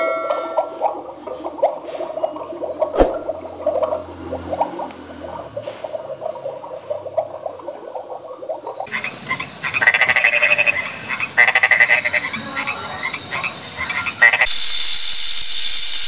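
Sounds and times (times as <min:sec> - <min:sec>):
frog croaking: 0:03.2 - 0:14.9.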